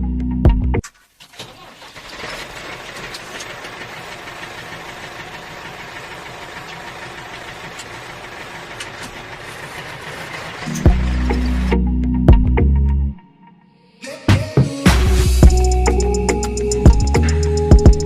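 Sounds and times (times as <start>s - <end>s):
small motor rattling: 1.4s - 11.7s.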